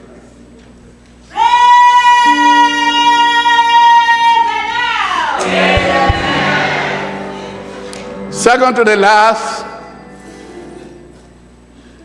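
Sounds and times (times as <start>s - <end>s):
held lower chords: 2.3s - 11.2s.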